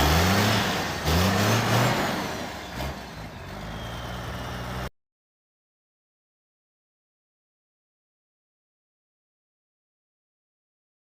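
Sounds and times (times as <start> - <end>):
diesel truck engine revving: 0.0 - 4.9
turbocharger whistle: 2.6 - 4.9.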